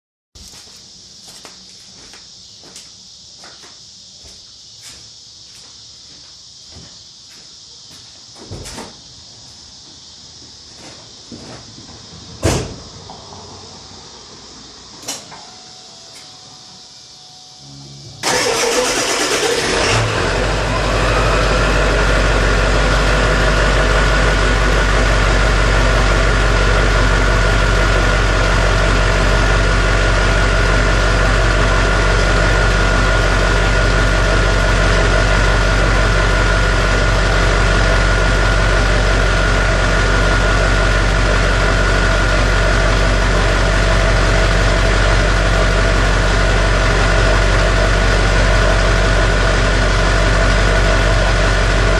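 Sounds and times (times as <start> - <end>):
engine whine: 11.4 - 51.9
truck engine starting and idling: 18.0 - 51.9.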